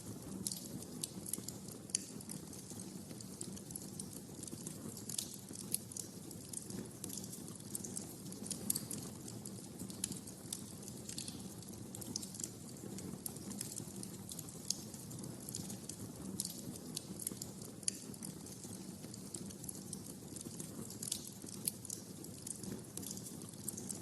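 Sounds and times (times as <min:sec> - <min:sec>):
wood fire popping and snapping: 0:00.0 - 0:24.0.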